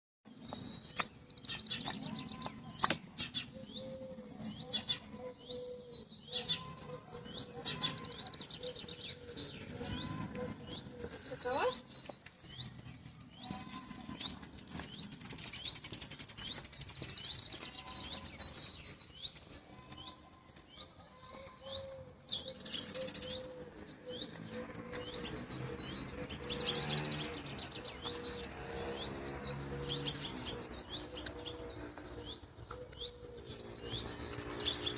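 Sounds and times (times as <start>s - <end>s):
birds singing: 0.3s - 34.9s
dove cooing: 3.3s - 11.8s, 21.0s - 34.0s.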